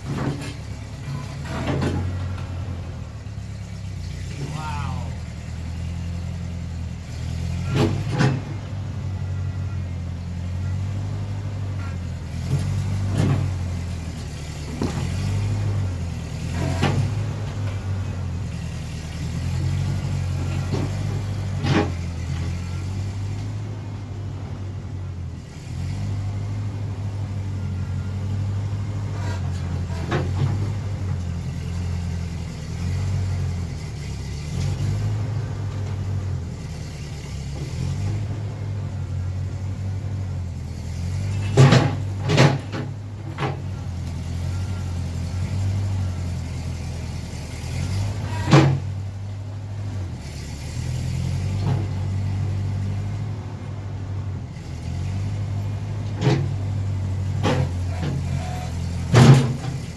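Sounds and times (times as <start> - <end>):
tractor engine running: 0.0 - 59.9
sharp knocks and clanks: 41.3 - 43.7, 57.4 - 59.9.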